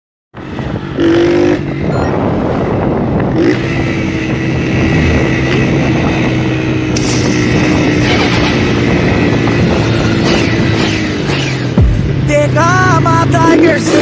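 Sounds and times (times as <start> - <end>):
vehicle engine running: 0.4 - 14.0
short loud flat tone: 1.9 - 2.2.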